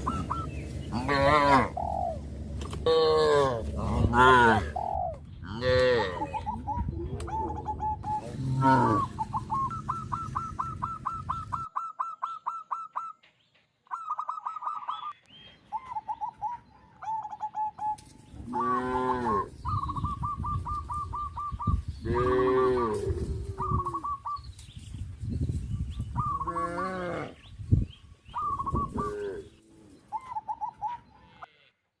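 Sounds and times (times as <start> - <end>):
birds chirping: 0.0 - 31.6
cattle mooing: 0.9 - 1.8, 2.8 - 4.8, 5.5 - 6.4, 8.2 - 9.2, 18.5 - 19.5.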